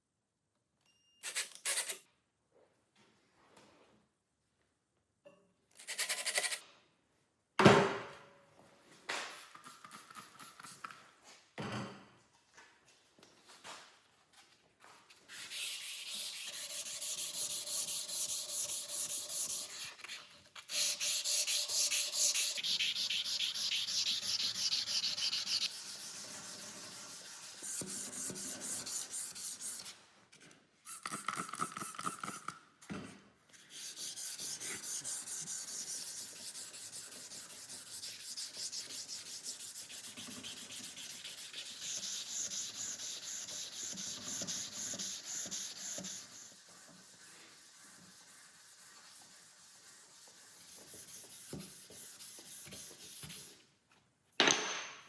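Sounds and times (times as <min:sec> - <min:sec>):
sanding a steel knife blade: 0:15.3 - 0:29.9, 0:33.6 - 0:53.5.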